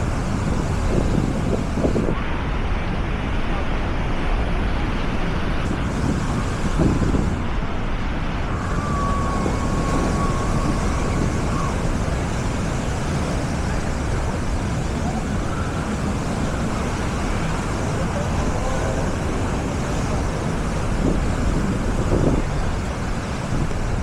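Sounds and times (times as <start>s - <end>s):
surf: 0.0s - 24.0s
wind rumbling on microphone: 0.0s - 24.0s
crowd voices: 8.5s - 22.8s.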